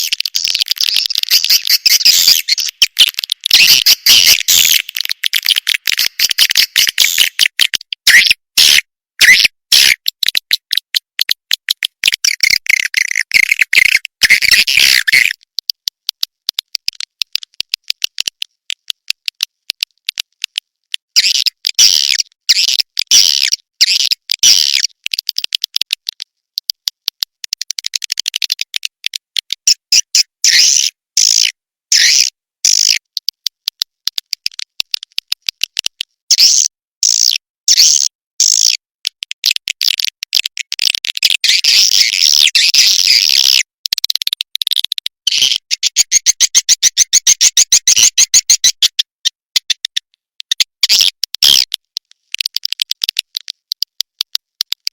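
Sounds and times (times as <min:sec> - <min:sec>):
swiftlet clicks and chittering: 0:00.0 - 0:08.2, 0:09.6 - 0:30.1, 0:31.2 - 0:54.9.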